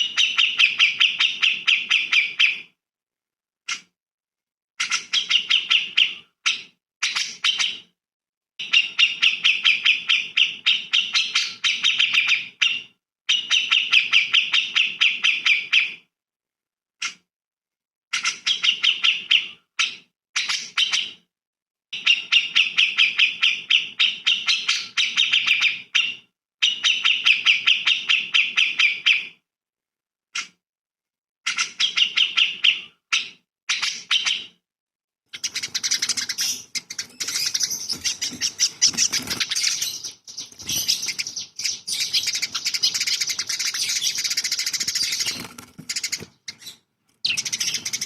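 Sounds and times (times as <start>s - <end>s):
songbird chattering trills: 35.4s - 48.0s.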